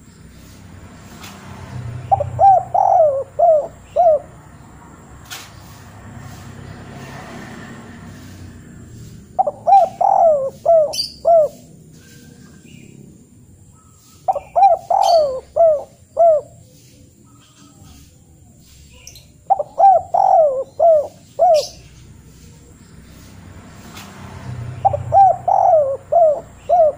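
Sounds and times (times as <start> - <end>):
bird calling: 2.0 - 4.7, 9.2 - 23.3, 24.6 - 26.9.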